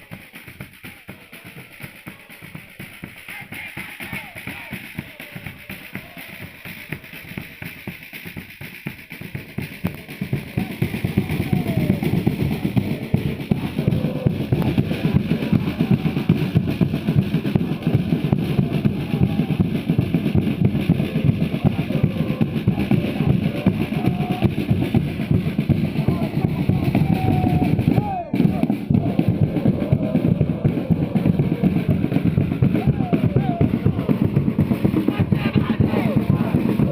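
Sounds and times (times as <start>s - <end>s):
crowd singing a chant: 0.0s - 36.9s
drums beating fast rhythm: 0.0s - 36.9s.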